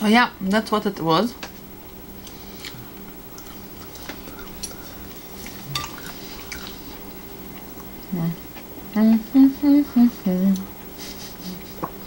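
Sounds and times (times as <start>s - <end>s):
steady low hum: 0.0s - 12.0s
quiet chewing and mouth clicks: 2.2s - 8.7s.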